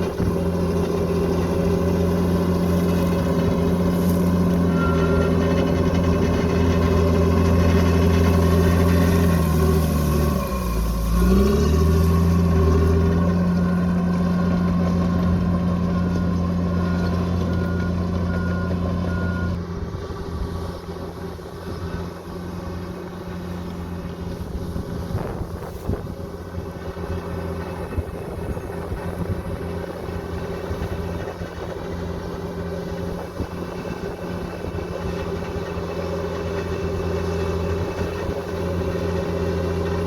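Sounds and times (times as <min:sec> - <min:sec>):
bulldozer diesel engine: 0:00.0 - 0:40.0
reversing alarm beeping: 0:04.6 - 0:05.7, 0:16.0 - 0:19.6.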